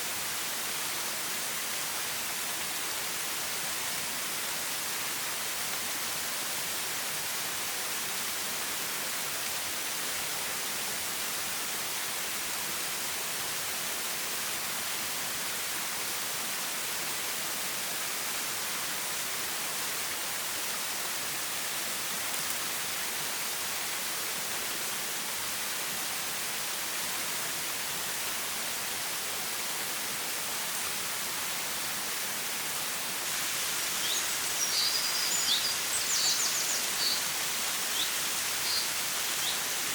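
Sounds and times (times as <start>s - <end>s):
stream water rushing: 0.0s - 39.9s
bird chirping: 33.7s - 39.7s.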